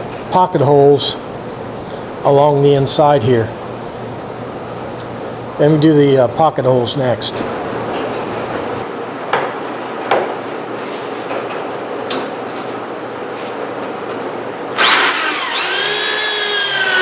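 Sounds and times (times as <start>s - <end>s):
power drill whining: 14.8s - 17.0s.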